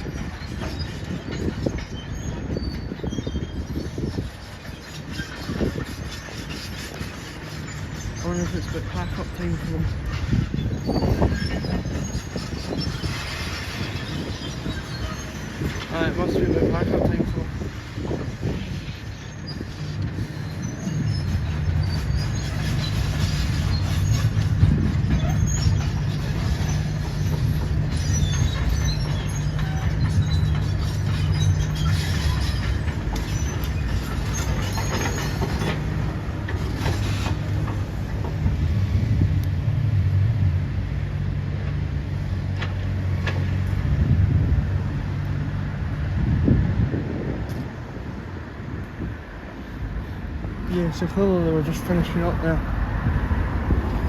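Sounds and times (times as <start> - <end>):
short high squeaks: 0.0 - 17.4, 18.1 - 36.0, 36.6 - 37.7.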